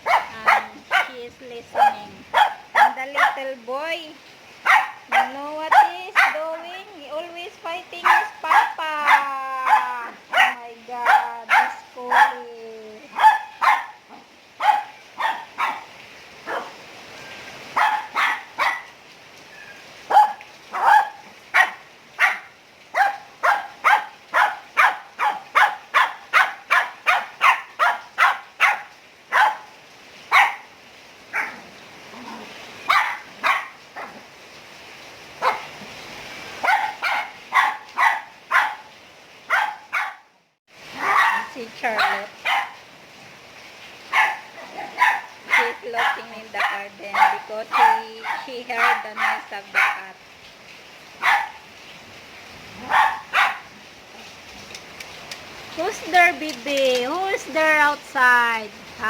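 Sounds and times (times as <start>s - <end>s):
dogs barking: 0.0s - 3.5s, 4.6s - 6.5s, 8.0s - 12.5s, 13.1s - 16.8s, 17.7s - 19.0s, 20.0s - 34.3s, 35.4s - 35.8s, 36.6s - 40.3s, 40.9s - 42.9s, 44.1s - 50.2s, 51.2s - 51.7s, 52.8s - 53.8s.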